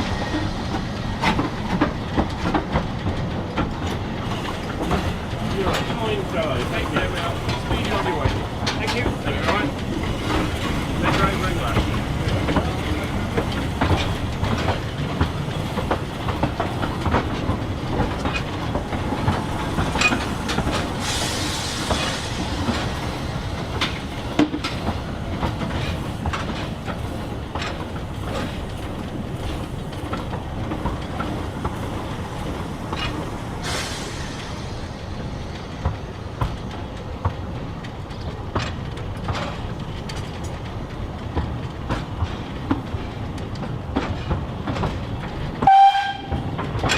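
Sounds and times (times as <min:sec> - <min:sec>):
steam train rumbling: 0:00.0 - 0:46.9
wheels clicking over rail joints: 0:00.1 - 0:46.9
steam hiss: 0:18.4 - 0:25.2, 0:31.3 - 0:36.2.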